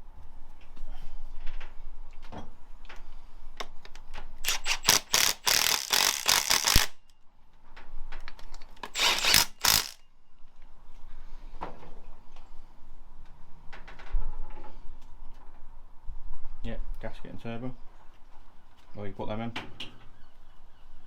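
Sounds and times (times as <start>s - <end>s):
hand tools clicking and knocking: 4.4s - 7.0s, 8.8s - 10.0s
ratchet clicking: 4.4s - 7.0s, 8.8s - 10.0s.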